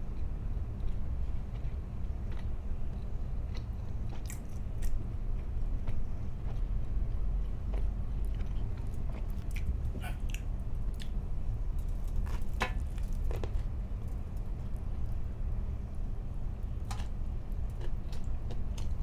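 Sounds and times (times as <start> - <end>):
steady low hum: 0.0 - 19.0
chewing with wet mouth smacks: 0.8 - 11.2, 16.6 - 19.0.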